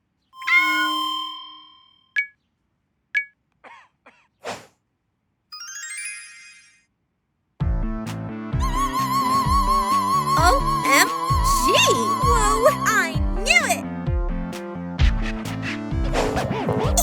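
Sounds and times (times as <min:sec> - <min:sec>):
rising twinkling notes: 0:00.4 - 0:02.1, 0:05.6 - 0:06.8
bright ringing chime: 0:00.4 - 0:02.3, 0:05.6 - 0:06.8
quick swish: 0:04.4 - 0:04.8.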